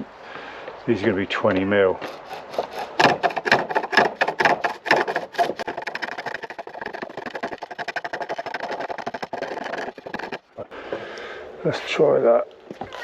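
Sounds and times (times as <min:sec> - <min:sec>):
hand tool scraping wood: 0:02.0 - 0:10.6.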